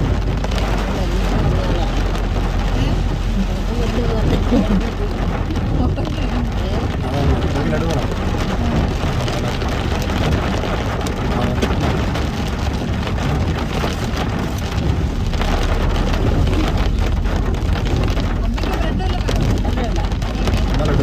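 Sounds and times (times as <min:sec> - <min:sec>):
car engine and tyres rumbling: 0:00.0 - 0:21.0
heavy rain on a car: 0:00.0 - 0:21.0.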